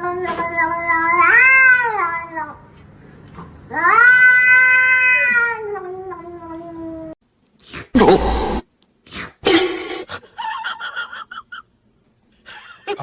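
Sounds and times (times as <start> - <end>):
cat yowling: 0.0 - 2.6, 3.7 - 7.2.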